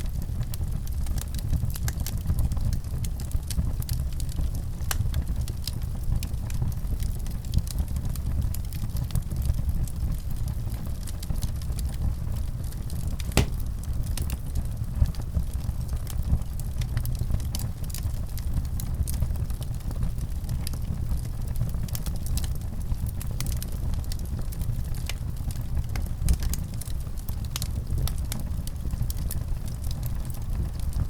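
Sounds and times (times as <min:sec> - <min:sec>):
wood fire crackling: 0:09.9 - 0:31.0
sharp pop of burning wood: 0:13.2 - 0:13.8.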